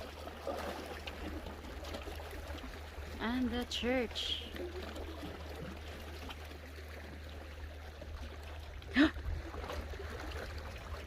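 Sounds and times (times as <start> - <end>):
sea water washing at shore: 0.0 - 11.0
wind rumble on microphone: 8.1 - 11.0.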